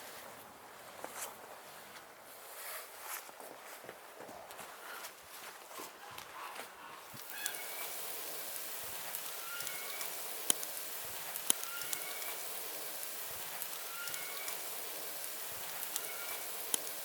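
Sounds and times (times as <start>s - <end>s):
steady hiss: 7.1s - 17.0s
crackles and clicks: 7.2s - 17.0s.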